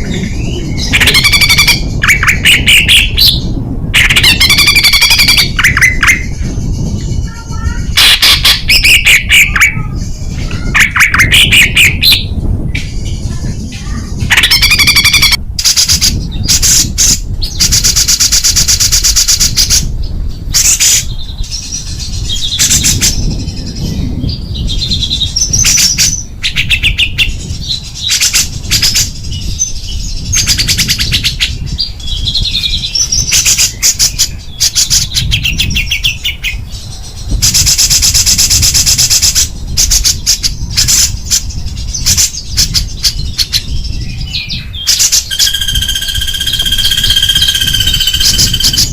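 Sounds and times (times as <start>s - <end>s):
songbird singing rapid trills: 0.0s - 48.9s
steady low rumble: 0.0s - 48.9s.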